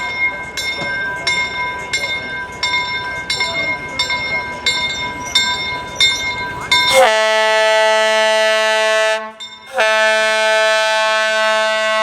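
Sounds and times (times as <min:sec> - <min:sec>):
train running with regular clicks: 0:00.0 - 0:12.0
steam locomotive whistle blast: 0:06.9 - 0:12.0.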